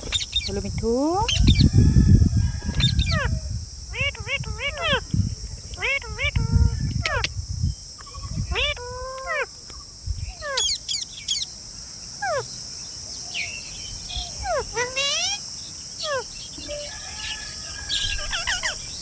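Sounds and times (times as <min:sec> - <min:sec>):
parakeets squawking: 0:02.6 - 0:05.1, 0:05.8 - 0:07.3, 0:08.0 - 0:09.5, 0:10.4 - 0:11.4, 0:12.2 - 0:12.5, 0:14.2 - 0:15.4, 0:16.0 - 0:19.0.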